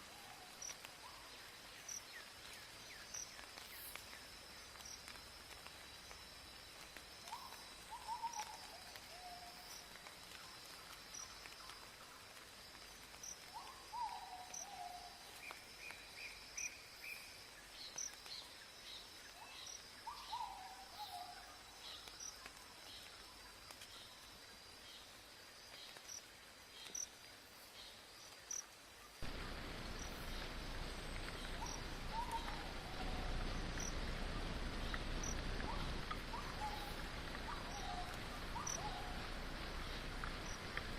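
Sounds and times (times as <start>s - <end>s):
insects droning and chirping: 0.0s - 40.9s
steady hiss: 0.0s - 40.9s
bird falling call: 31.2s - 33.8s.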